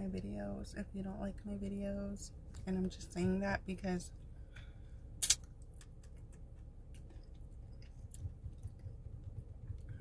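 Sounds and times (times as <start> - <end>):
low steady rumble: 0.0 - 10.0
sharp click: 5.2 - 6.2.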